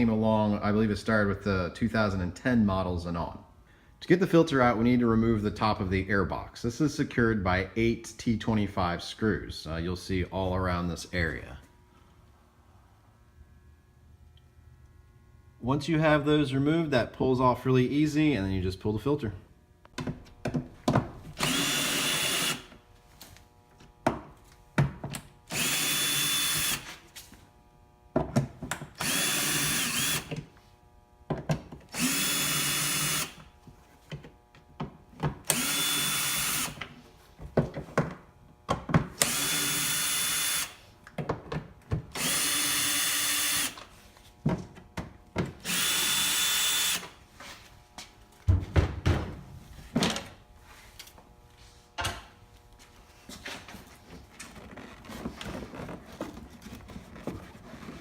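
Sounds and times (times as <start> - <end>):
power drill motor running: 21.3 - 22.9, 25.5 - 27.2, 29.0 - 30.5, 31.9 - 33.6, 35.4 - 37.0, 39.2 - 40.9, 42.1 - 44.0, 45.6 - 47.2.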